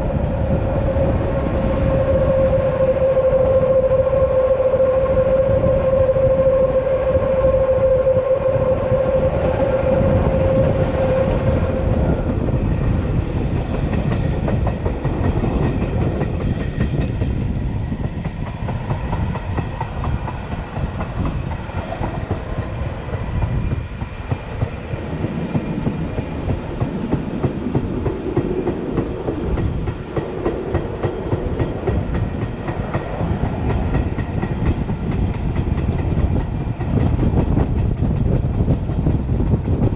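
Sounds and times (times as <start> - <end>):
steady high tone: 0.0 - 12.6
train rumbling on track: 0.0 - 39.9.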